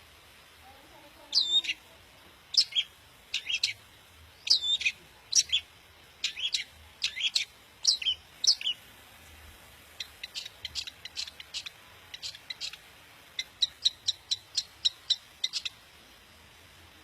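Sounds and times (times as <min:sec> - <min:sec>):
bird singing high chirps: 0:01.3 - 0:01.8, 0:02.5 - 0:03.8, 0:04.4 - 0:08.8, 0:10.0 - 0:12.8, 0:13.4 - 0:15.8.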